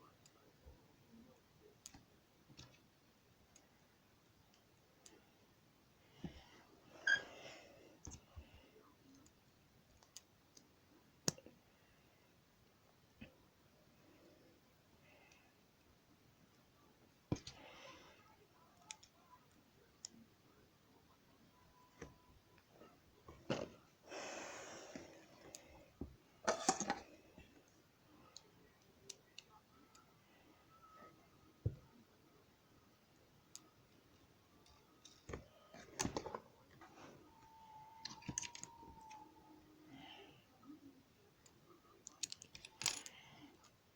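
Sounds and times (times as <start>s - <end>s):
plastic toy bricks clicking: 42.0s - 43.1s.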